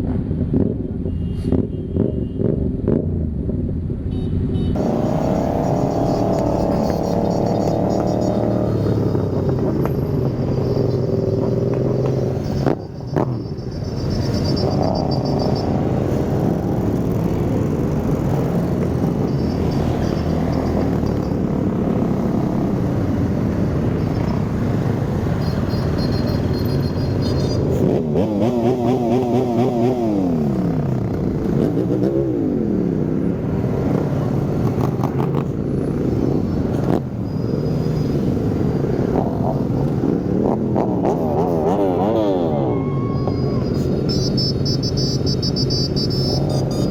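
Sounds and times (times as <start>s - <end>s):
motorcycle engines running: 4.7s - 46.9s
warbling siren-like tone: 4.8s - 16.8s, 41.8s - 46.9s.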